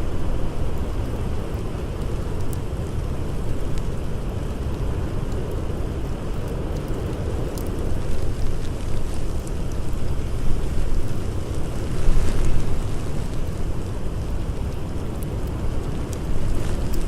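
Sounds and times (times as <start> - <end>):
blizzard wind blowing: 0.0 - 17.0
campfire crackling: 0.0 - 17.0.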